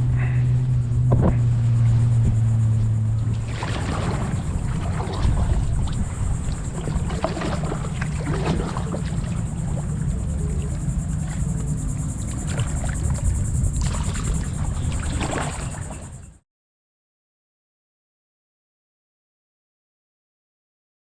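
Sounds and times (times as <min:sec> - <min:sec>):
water lapping against kayak hull: 0:00.0 - 0:16.4
wind on microphone: 0:00.0 - 0:16.4.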